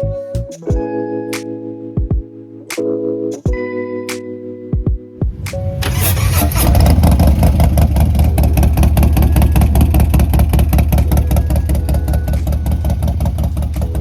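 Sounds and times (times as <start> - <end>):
motorcycle engine idling: 5.8 - 14.0.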